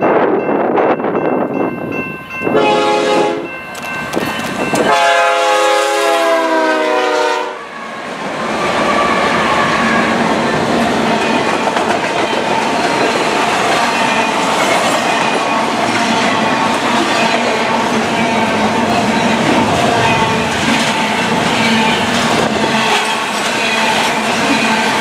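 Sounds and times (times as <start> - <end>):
locomotive air horn chord: 2.5 - 3.5, 4.9 - 7.7
freight cars rolling: 8.2 - 25.0.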